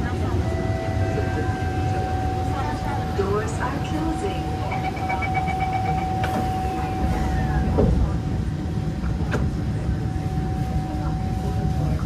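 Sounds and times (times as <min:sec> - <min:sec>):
train low rumble: 0:00.0 - 0:12.0
short beeps: 0:04.2 - 0:07.4.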